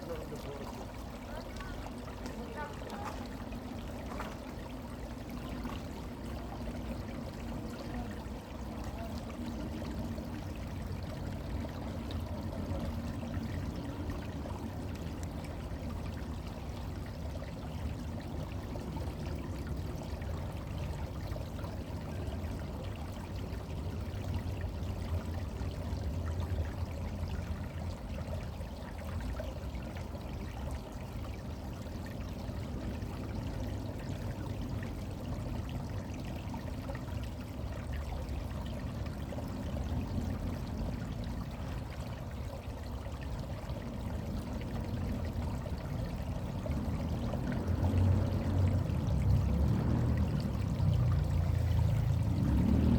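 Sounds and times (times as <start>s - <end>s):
brook water trickling: 0.0s - 52.9s.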